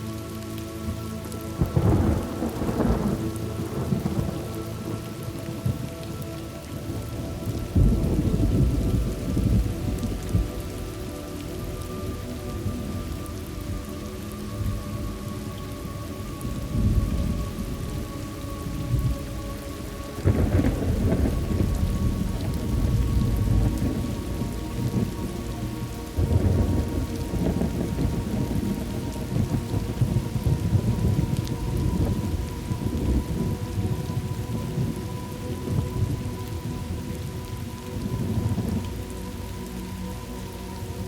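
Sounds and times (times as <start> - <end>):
steady rain: 0.0 - 41.0
rolling thunder: 1.6 - 6.2, 6.8 - 11.0, 20.2 - 38.9.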